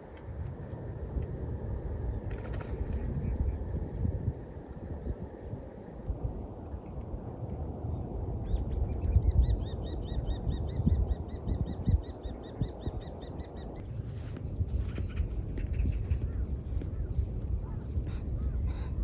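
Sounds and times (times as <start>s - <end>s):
low outdoor rumble: 13.8s - 19.0s.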